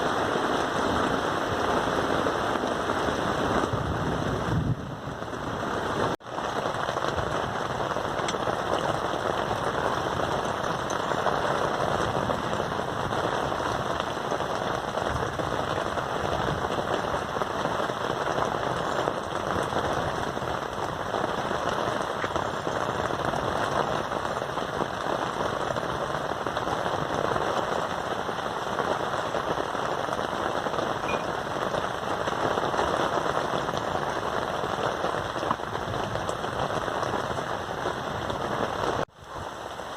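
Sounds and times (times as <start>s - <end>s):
rain patter: 0.0s - 39.9s.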